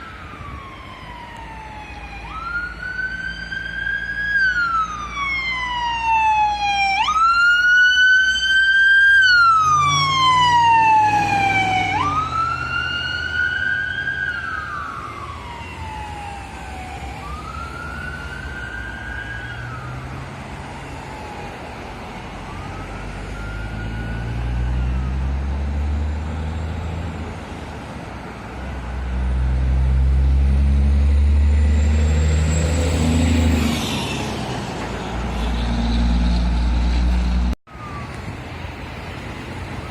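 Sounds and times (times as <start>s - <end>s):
fire truck siren wailing: 0.0s - 39.9s
deep vehicle engine rumble: 34.6s - 37.9s.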